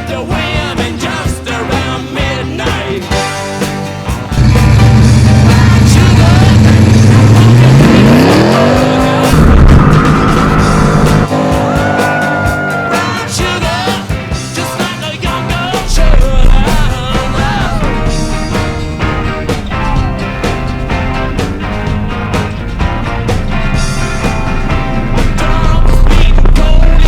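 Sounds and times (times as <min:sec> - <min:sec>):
rock music: 0:00.0 - 0:27.0
car engine revving: 0:04.2 - 0:27.0
high squeal: 0:09.3 - 0:13.4, 0:15.8 - 0:27.0.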